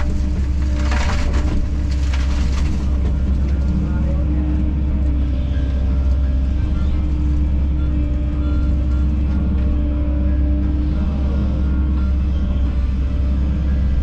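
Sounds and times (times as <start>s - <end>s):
excavator diesel engine drone: 0.0s - 14.0s.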